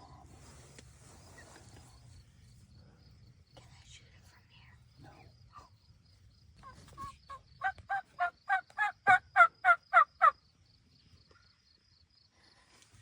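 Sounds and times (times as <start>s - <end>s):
turkey yelps: 6.6s - 10.3s.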